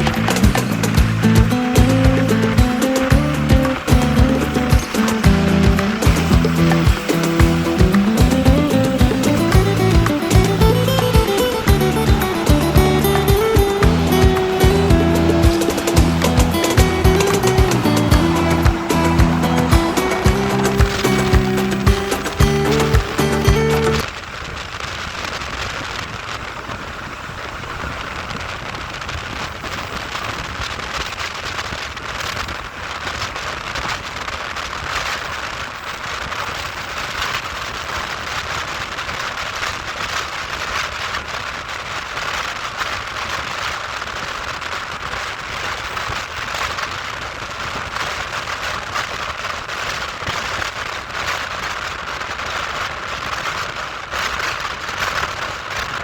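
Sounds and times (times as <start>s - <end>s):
train running noise: 0.0s - 24.0s.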